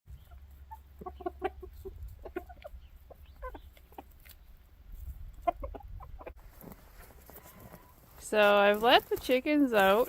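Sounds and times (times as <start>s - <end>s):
chickens clucking: 0.1s - 6.5s.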